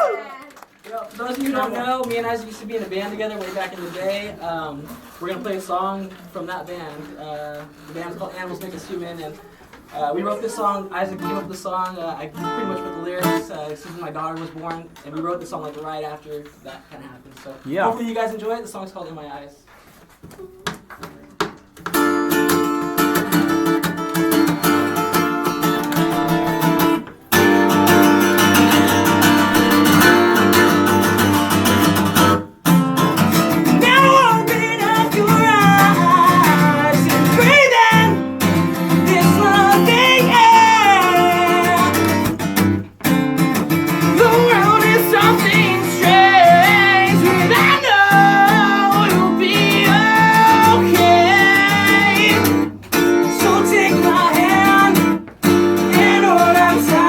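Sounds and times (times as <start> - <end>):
acoustic guitar chords: 1.5 - 14.8, 21.7 - 57.0
sliding guitar melody: 12.4 - 13.4, 21.9 - 57.0.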